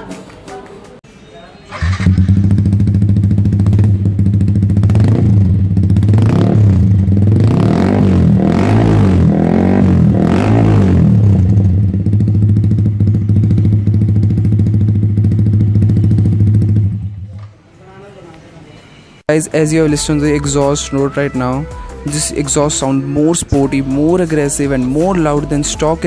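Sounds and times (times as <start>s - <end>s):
motorcycle engine idling and revving: 1.7s - 17.5s.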